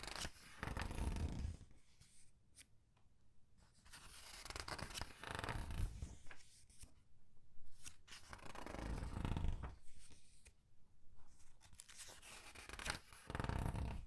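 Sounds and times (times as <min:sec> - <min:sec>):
paper pages turning: 0:03.9 - 0:06.9, 0:11.2 - 0:14.0.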